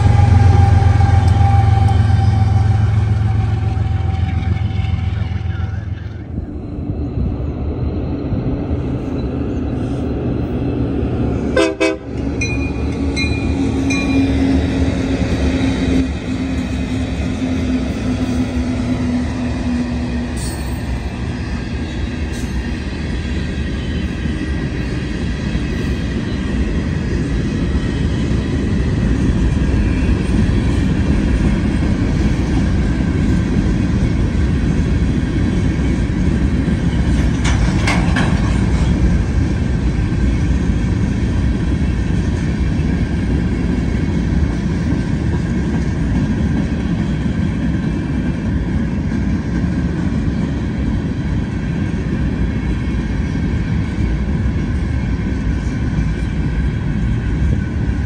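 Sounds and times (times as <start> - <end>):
locomotive horn: 0.0 - 6.2, 11.6 - 12.2
freight cars rumbling and clattering: 1.1 - 58.0.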